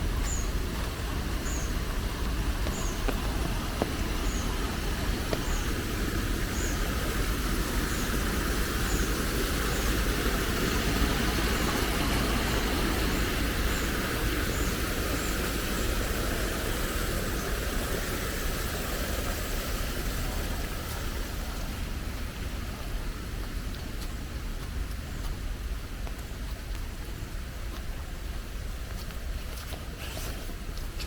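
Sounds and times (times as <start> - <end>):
steady rain: 0.0 - 31.0
traffic hissing on wet road: 0.0 - 31.0
bird chirping: 1.4 - 1.8.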